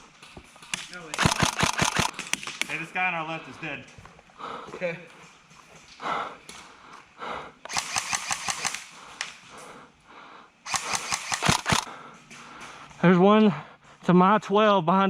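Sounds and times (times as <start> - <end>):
airsoft rifle rapid fire: 1.0 - 2.6, 7.7 - 9.0, 10.7 - 11.9.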